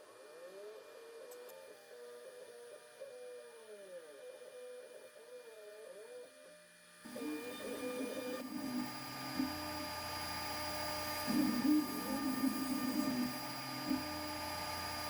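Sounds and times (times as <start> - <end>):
faint whine gliding in pitch: 0.0 - 15.0
cnc router cutting plywood: 7.1 - 15.0.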